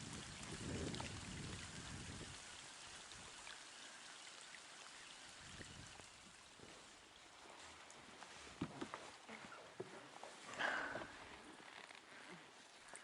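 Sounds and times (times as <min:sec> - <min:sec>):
rain hissing: 0:00.0 - 0:08.6.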